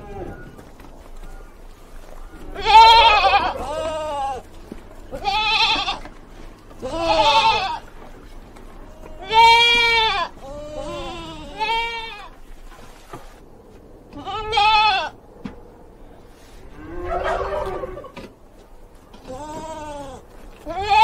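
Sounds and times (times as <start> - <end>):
sheep bleating: 2.4 - 4.5, 5.1 - 6.1, 6.7 - 7.9, 8.9 - 12.4, 14.1 - 15.2, 19.2 - 21.0.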